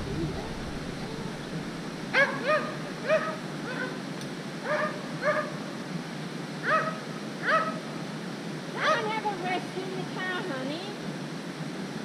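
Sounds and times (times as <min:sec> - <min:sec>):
waterfall rushing: 0:00.0 - 0:04.1.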